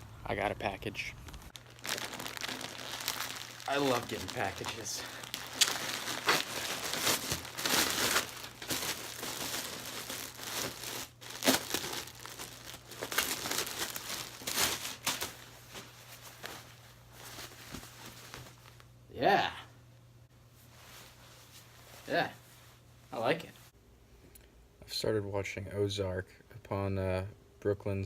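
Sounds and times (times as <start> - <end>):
packaging crinkling and tearing: 1.0 - 16.6.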